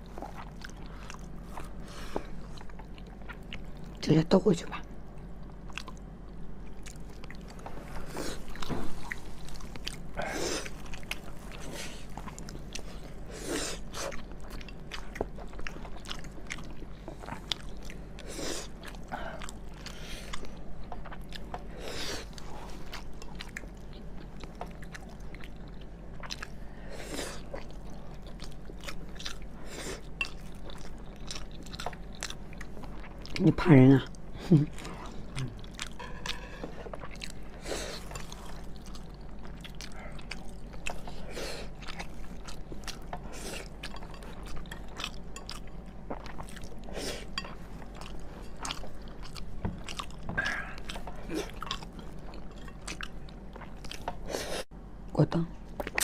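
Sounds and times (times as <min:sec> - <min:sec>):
person chewing and biting: 0:27.3 - 0:33.4, 0:34.8 - 0:54.3.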